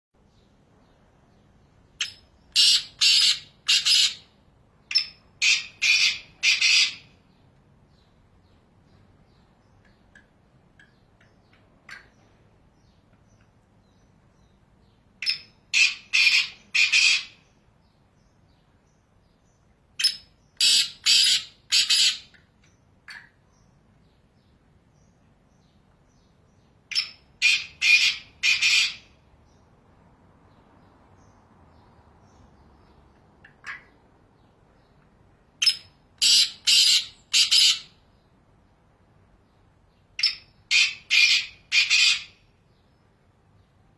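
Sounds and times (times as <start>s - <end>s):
francolin calling: 2.0s - 4.2s, 35.6s - 37.9s.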